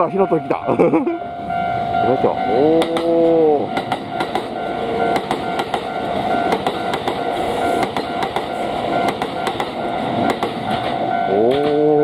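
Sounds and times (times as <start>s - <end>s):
electric train passing at speed: 0.0s - 12.0s
level-crossing alarm ringing: 0.0s - 12.0s
wheels clicking over rail joints: 2.8s - 12.0s.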